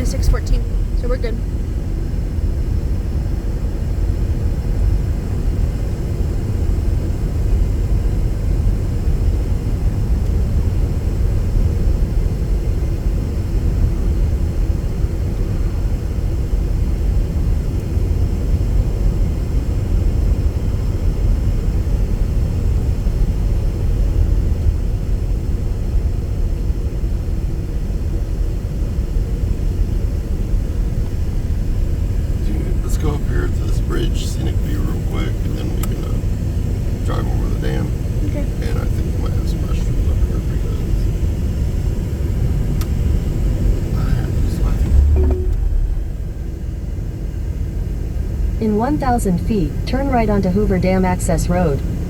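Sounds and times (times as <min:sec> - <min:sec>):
car interior road rumble: 0:31.0 - 0:47.0.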